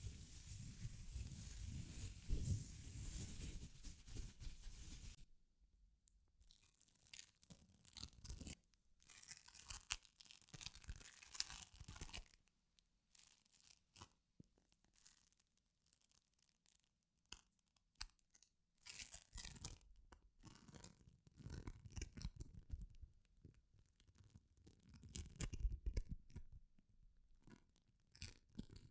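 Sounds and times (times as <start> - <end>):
scratchy rustling: 0.0 - 5.2.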